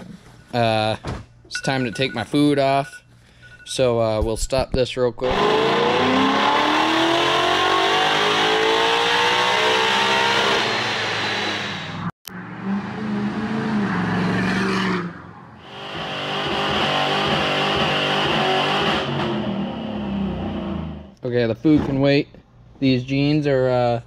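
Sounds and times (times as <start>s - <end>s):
car engine revving on a dyno: 5.2s - 15.0s, 15.6s - 21.2s
engine held high in burnout: 5.2s - 21.2s
diesel pickup accelerating: 5.3s - 21.1s
tire squeal: 9.3s - 17.9s.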